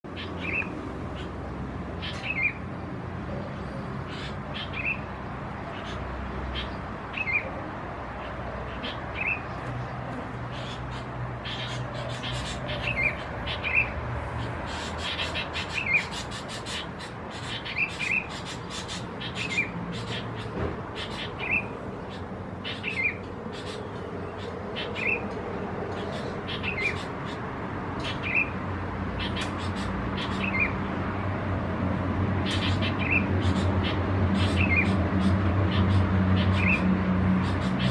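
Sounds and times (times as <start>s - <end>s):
wild birds calling: 0.0s - 37.9s.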